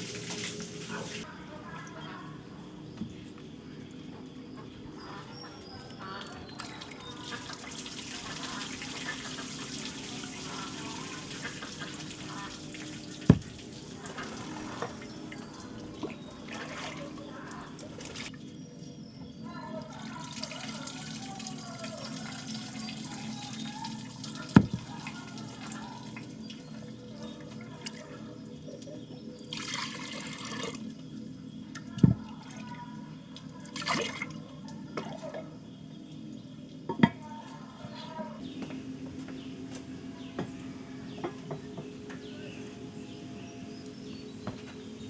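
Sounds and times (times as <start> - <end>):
water splashing and trickling: 0.0 - 1.8, 5.9 - 38.4
steady low hum: 38.4 - 45.0.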